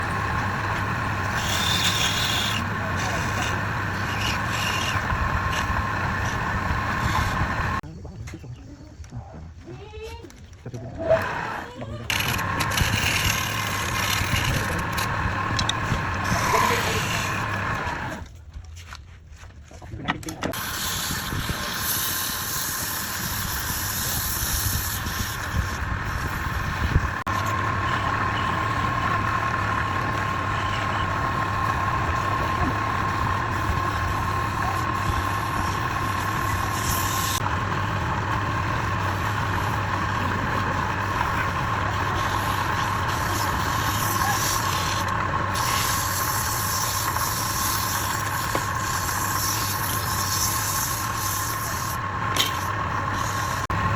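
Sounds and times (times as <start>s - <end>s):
thin motor whine: 0.0s - 7.8s, 11.0s - 18.3s, 20.6s - 53.9s
tool cutting spinning wood: 0.0s - 7.8s, 10.9s - 18.3s, 20.5s - 53.9s
wood lathe running: 0.0s - 7.8s, 11.1s - 18.3s, 20.6s - 53.9s.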